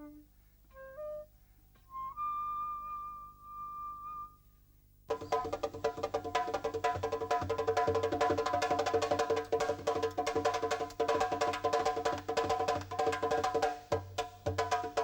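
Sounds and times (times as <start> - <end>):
bamboo percussion music: 5.1 - 15.0.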